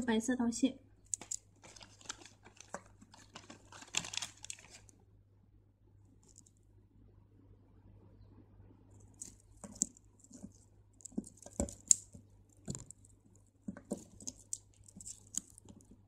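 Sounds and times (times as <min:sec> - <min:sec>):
faint steady hum: 0:00.0 - 0:16.0
beads clicking and rattling: 0:01.1 - 0:04.9, 0:06.2 - 0:06.6, 0:09.0 - 0:16.0.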